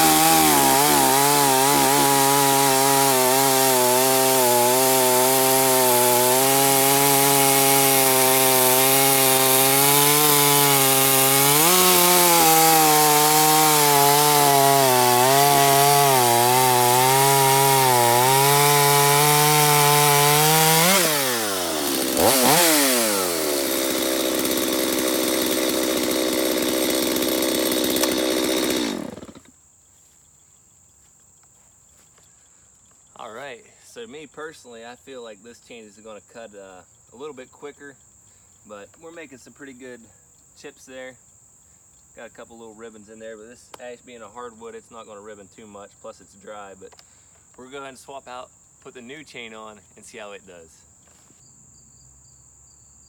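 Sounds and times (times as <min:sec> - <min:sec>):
chainsaw cutting log: 0:00.0 - 0:29.6.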